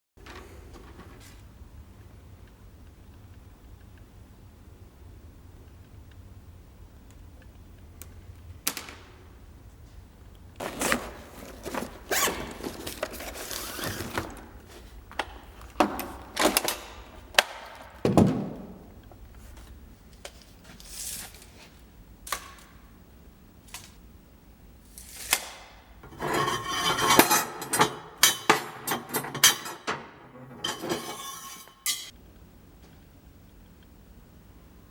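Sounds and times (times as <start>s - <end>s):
parts and tools knocking and scraping: 10.6s - 18.5s, 26.0s - 32.1s.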